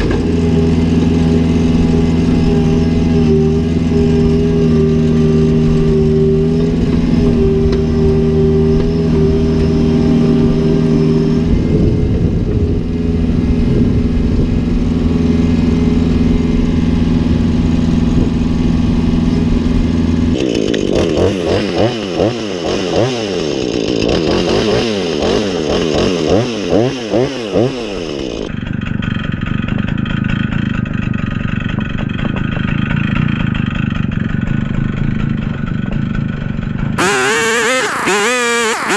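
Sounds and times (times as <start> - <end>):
power equipment engine running: 37.0 - 38.9.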